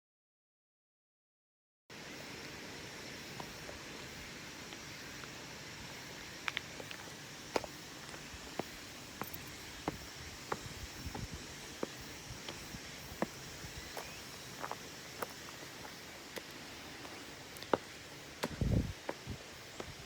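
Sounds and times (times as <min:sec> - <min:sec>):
faint steady hiss: 0:01.9 - 0:20.0
footsteps on a path: 0:04.6 - 0:20.0.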